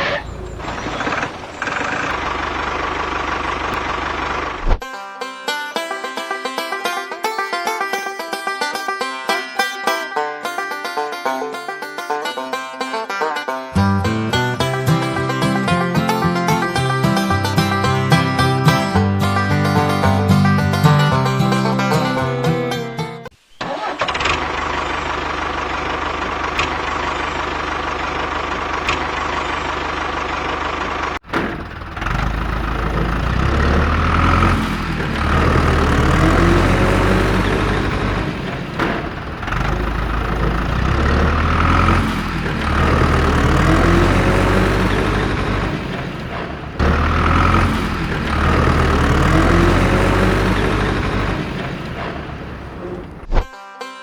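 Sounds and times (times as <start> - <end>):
deep engine rumble: 0.0 - 4.8, 24.4 - 53.4
tractor motor running with whine: 0.0 - 4.8, 23.7 - 53.4.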